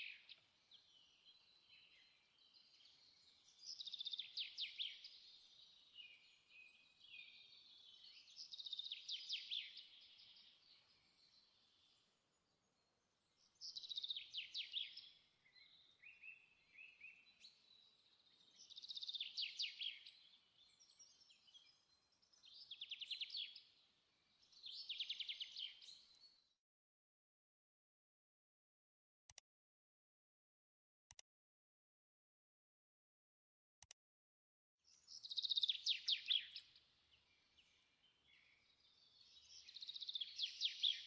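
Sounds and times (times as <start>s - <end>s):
bird singing trilled phrases: 13.4s - 26.4s, 34.9s - 41.0s.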